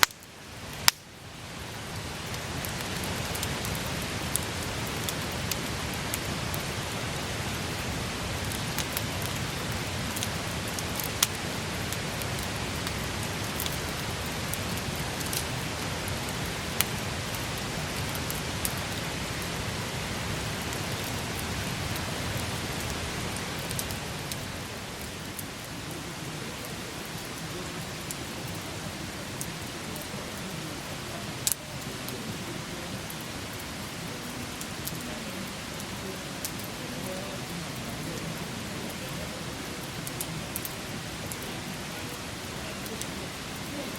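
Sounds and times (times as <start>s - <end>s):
campfire hissing and crackling: 0.0s - 43.9s.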